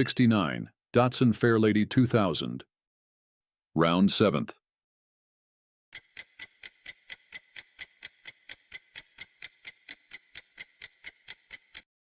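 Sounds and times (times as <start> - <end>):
clock ticking: 6.0 - 11.9.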